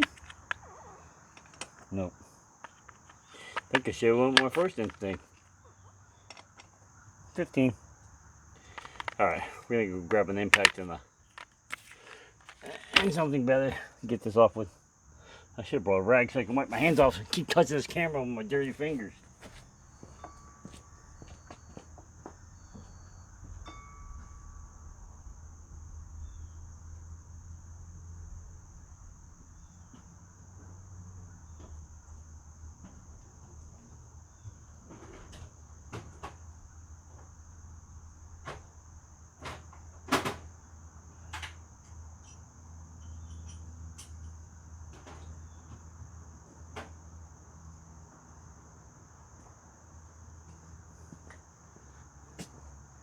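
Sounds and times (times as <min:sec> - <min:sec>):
crickets chirping: 0:00.0 - 0:53.0
sharp knocks and clanks: 0:02.6 - 0:05.4
low hum: 0:16.7 - 0:34.8.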